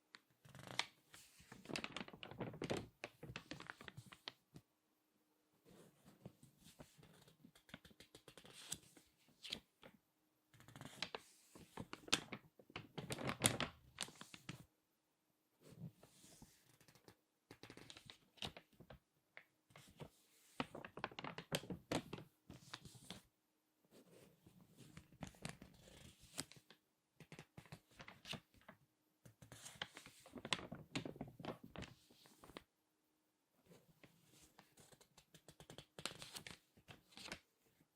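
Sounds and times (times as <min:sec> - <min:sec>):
magazine pages crinkling: 0:01.5 - 0:04.4.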